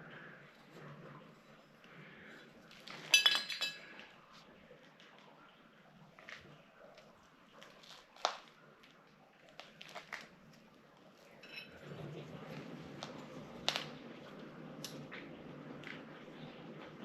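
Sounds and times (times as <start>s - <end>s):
metal hand tools clinking: 3.1s - 3.9s.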